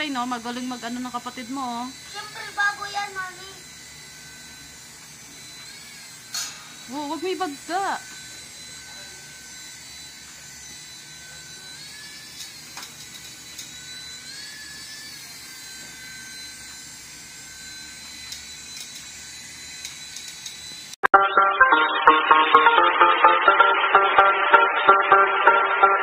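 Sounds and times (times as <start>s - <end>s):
electric propeller motors whining: 0.0s - 21.0s
music: 21.1s - 26.0s.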